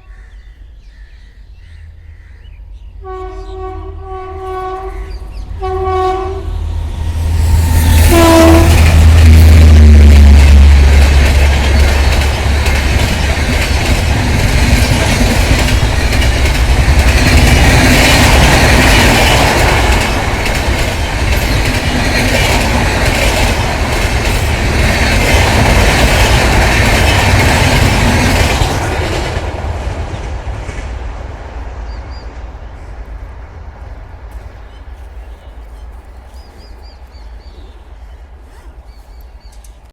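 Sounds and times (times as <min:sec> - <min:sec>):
train wheels clattering over rail joints: 0:10.1 - 0:31.0.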